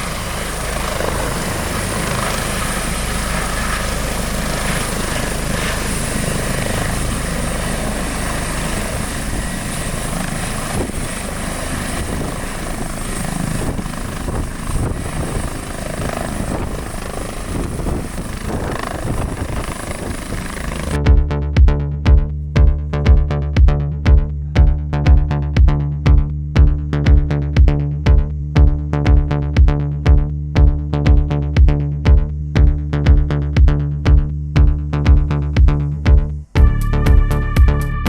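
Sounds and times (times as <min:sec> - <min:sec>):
helicopter rotor and engine: 0:00.0 - 0:21.0
high steady whine: 0:00.0 - 0:38.0.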